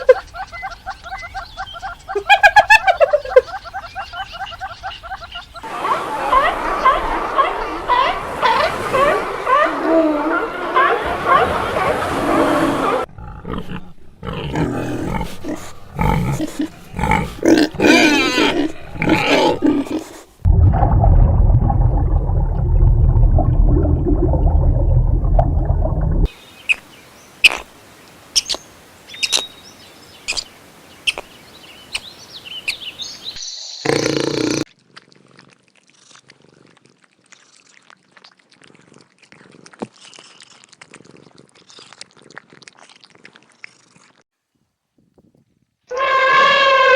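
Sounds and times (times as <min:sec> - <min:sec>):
steady low rumble: 0:20.5 - 0:26.3.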